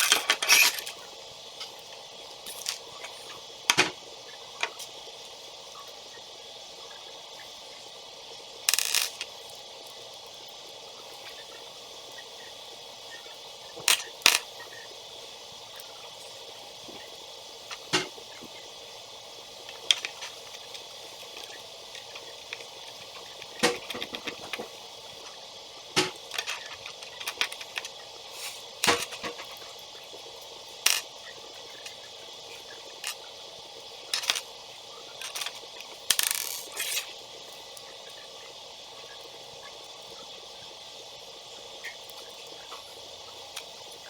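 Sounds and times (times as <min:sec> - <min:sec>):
toy pieces clicking and rattling: 0:00.0 - 0:01.0, 0:08.7 - 0:09.2, 0:30.9 - 0:31.1, 0:34.2 - 0:34.5, 0:35.2 - 0:37.0.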